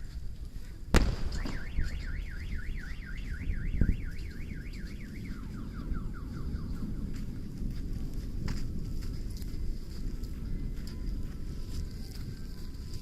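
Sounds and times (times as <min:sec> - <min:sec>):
thud: 0:01.0 - 0:02.1
car alarm warbling and chirping: 0:01.3 - 0:06.8.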